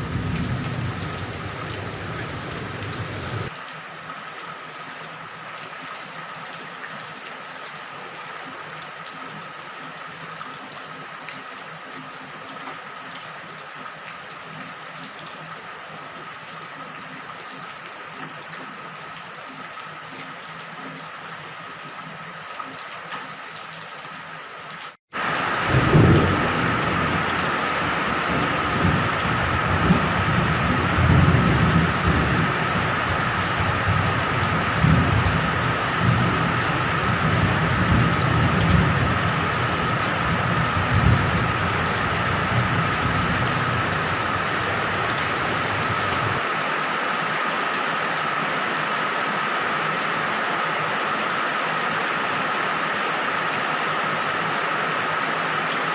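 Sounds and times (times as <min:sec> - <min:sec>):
rolling thunder: 0:00.0 - 0:03.5, 0:25.6 - 0:46.4
rain falling: 0:00.0 - 0:55.9.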